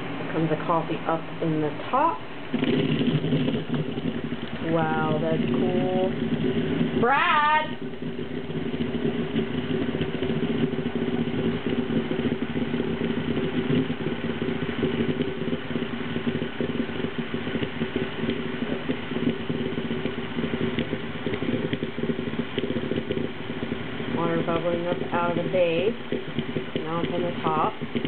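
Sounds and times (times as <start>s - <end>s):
dishwasher running: 0.0s - 16.6s
coffee maker bubbling: 0.0s - 28.0s.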